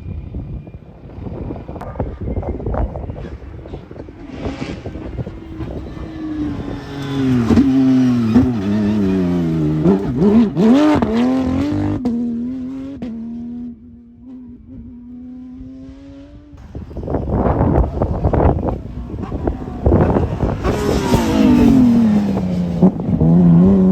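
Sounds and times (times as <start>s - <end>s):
rally car engine revving: 1.0s - 23.9s.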